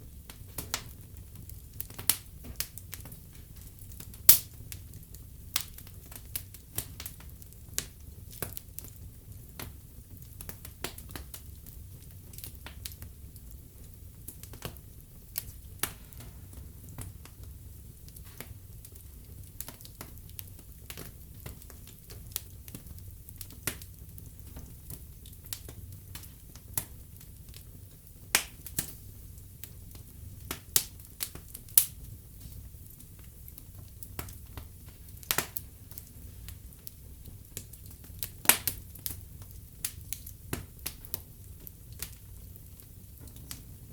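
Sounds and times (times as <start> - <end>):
low rumble of flames: 0.0 - 43.9
wood fire crackling and popping: 0.0 - 43.9.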